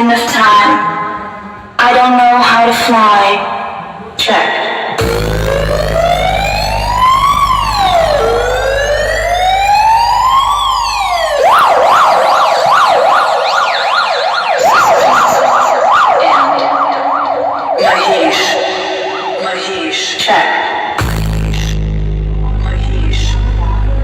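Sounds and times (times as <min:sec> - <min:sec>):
deep bass drone: 0:05.0 - 0:12.3, 0:21.0 - 0:24.0
electronic siren wailing and yelping: 0:05.0 - 0:20.2.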